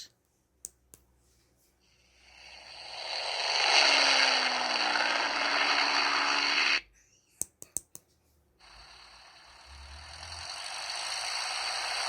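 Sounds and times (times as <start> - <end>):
airplane engine through small speaker: 2.5 - 6.8, 8.6 - 12.0.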